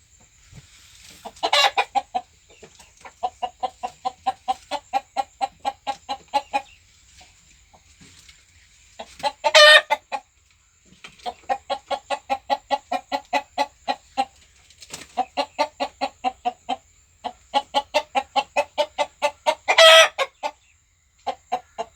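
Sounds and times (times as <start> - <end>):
chickens clucking: 0.1 - 21.9
chicken squawking: 1.4 - 2.1, 9.2 - 10.0, 17.6 - 20.5.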